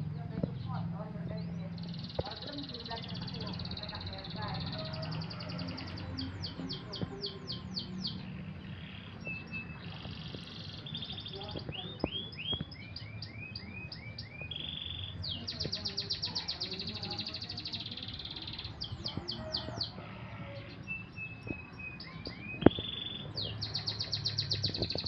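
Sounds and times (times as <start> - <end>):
songbirds singing: 0.0 - 25.0.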